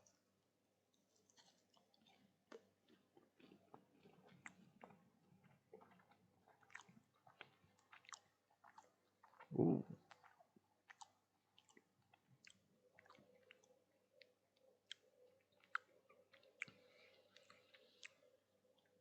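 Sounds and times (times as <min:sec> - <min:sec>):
faint chewing: 0:00.9 - 0:19.0
mouth clicks: 0:09.5 - 0:10.2.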